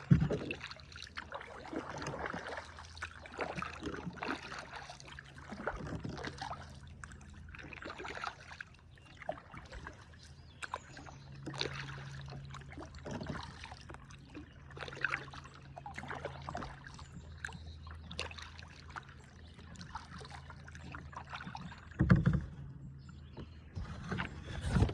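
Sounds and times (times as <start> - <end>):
knocks against hull: 0.0 - 0.7, 20.8 - 22.7
paddle strokes splashing: 0.0 - 22.7, 23.3 - 24.9.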